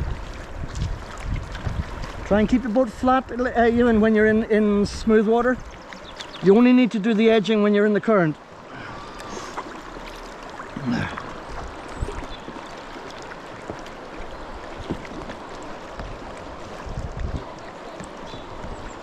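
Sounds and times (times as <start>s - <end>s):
small knocks and splashes: 0.0s - 2.3s, 9.2s - 19.0s
river current rushing: 1.9s - 19.0s.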